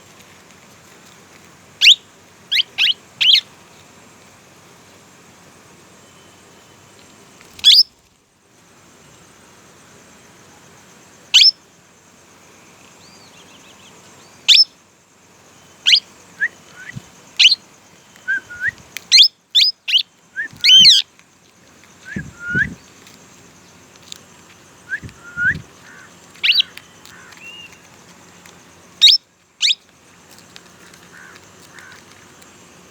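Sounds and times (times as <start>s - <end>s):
parakeets chirping shrilly: 1.8s - 3.4s, 7.6s - 7.9s, 17.4s - 17.6s, 19.1s - 21.0s, 25.0s - 27.7s, 29.0s - 29.8s.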